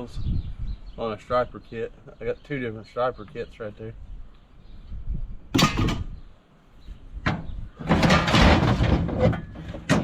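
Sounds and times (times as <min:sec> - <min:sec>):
heavy metal parts clunking: 0:05.6 - 0:06.1, 0:07.3 - 0:10.0.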